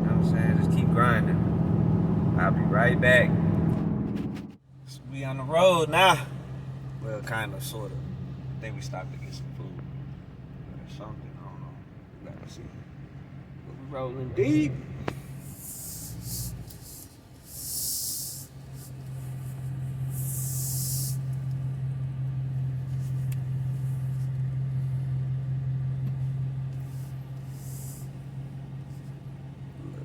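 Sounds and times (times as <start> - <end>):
car engine drone inside cabin: 0.0 - 30.0
short bursts of hissing: 15.4 - 21.3, 27.0 - 28.2.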